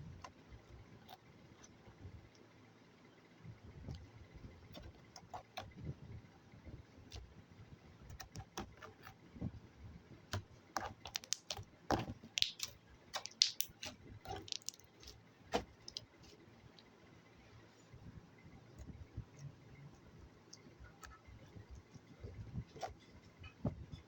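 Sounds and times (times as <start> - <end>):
slime sticky clicks and pops: 11.1 - 14.9.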